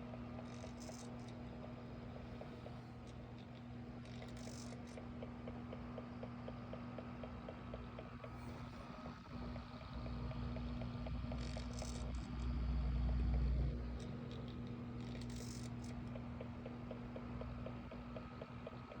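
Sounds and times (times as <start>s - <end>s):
oscillating fan humming: 0.0s - 19.0s.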